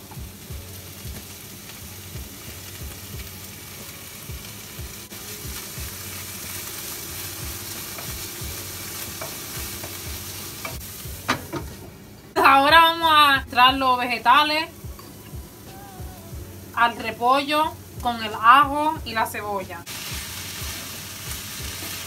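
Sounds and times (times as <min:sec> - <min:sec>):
cabbage sizzling in a frying pan: 0:00.0 - 0:11.8, 0:16.6 - 0:22.0.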